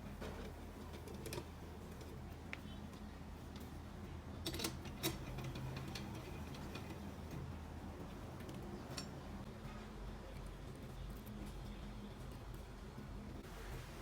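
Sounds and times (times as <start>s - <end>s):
small parts clicking and tapping: 0.1s - 3.7s, 4.4s - 7.5s.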